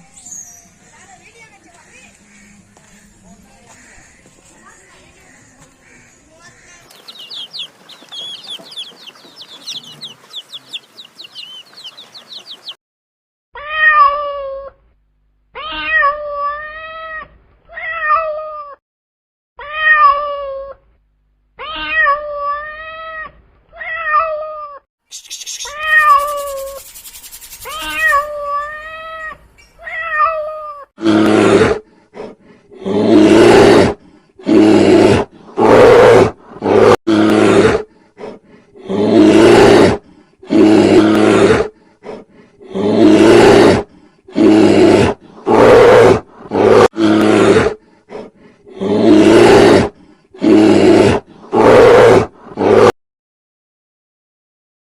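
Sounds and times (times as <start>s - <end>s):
small birds chirping: 0.1s - 12.8s, 25.1s - 29.8s
lion roaring: 32.8s - 37.8s, 38.8s - 41.7s, 42.6s - 52.9s.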